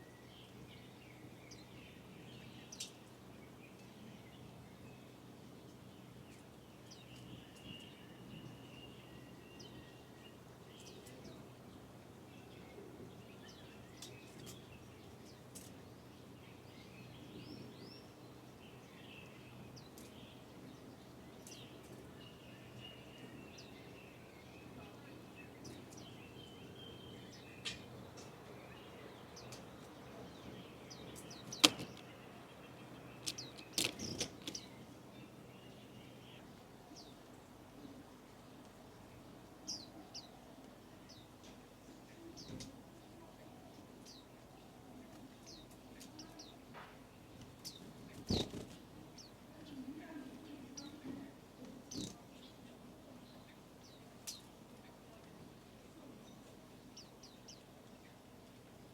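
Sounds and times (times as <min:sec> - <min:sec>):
birds twittering: 0:00.0 - 0:58.9
wing flutters: 0:31.4 - 0:32.0, 0:47.7 - 0:48.9
small rustles: 0:33.2 - 0:34.9.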